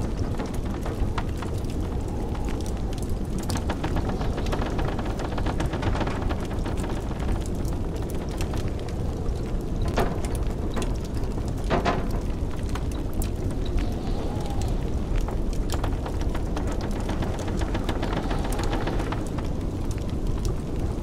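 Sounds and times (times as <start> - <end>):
blizzard wind rumble: 0.0 - 21.0
wood fire crackling: 0.0 - 21.0.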